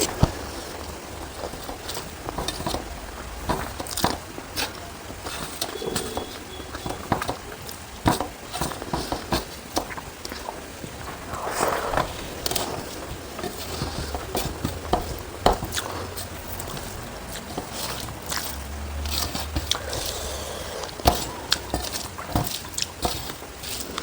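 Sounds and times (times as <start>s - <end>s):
person chewing food: 0.0s - 24.0s
clicks and scrapes on a plate: 20.8s - 24.0s.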